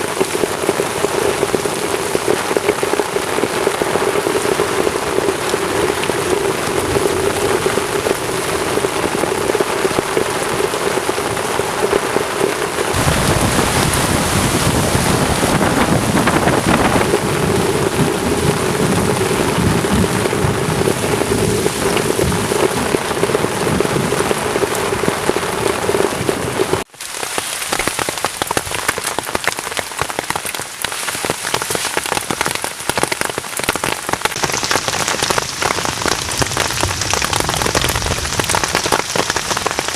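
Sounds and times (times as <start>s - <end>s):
heavy rain on shelter: 0.0s - 39.9s
deep rumble: 13.0s - 26.6s.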